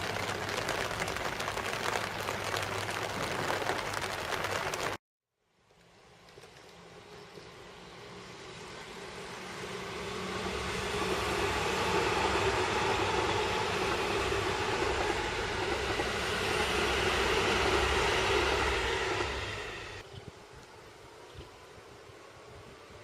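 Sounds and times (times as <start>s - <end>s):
wheels rushing on rail: 0.0s - 5.0s, 5.7s - 23.0s
electric train running past: 5.7s - 23.0s.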